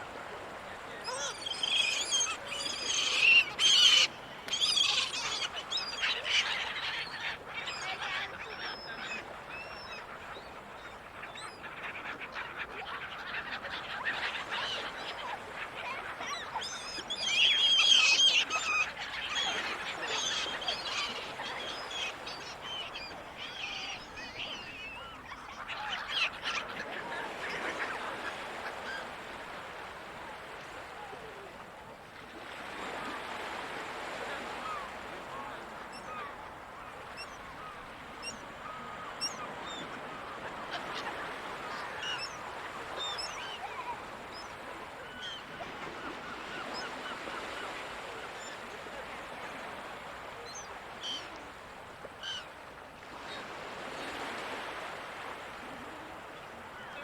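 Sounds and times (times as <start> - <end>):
gulls calling: 0.4 - 10.1, 10.7 - 31.5.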